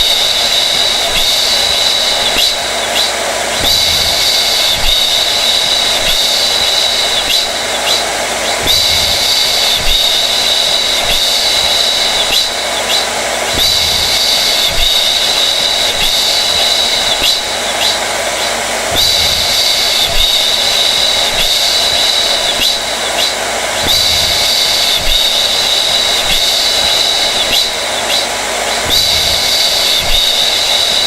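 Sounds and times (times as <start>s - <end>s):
hair dryer running: 0.0s - 31.0s.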